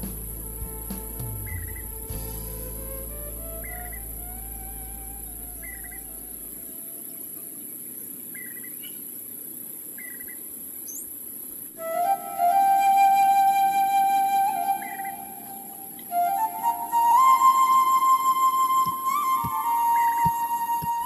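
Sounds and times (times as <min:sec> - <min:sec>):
flute music: 0:00.0 - 0:06.5, 0:11.8 - 0:21.0
short bird chirps: 0:00.0 - 0:07.6, 0:08.3 - 0:09.1.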